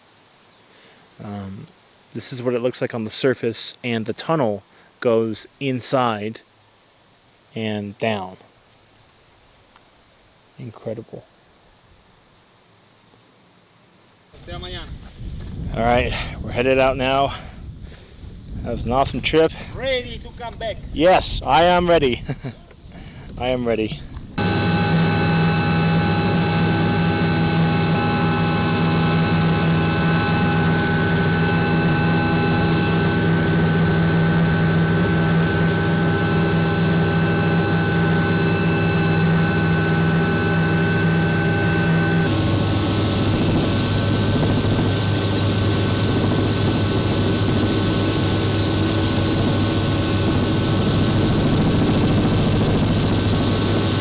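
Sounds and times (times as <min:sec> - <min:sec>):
helicopter engine and rotor drone: 0:14.4 - 0:15.3, 0:24.2 - 0:54.0.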